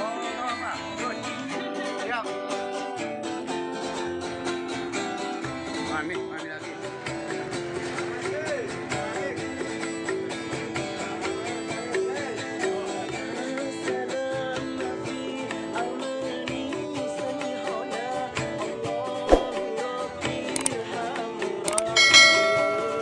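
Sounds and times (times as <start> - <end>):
plucked string instrumental music: 0.0 - 13.9, 21.6 - 23.0
sharp knock: 19.3 - 19.6.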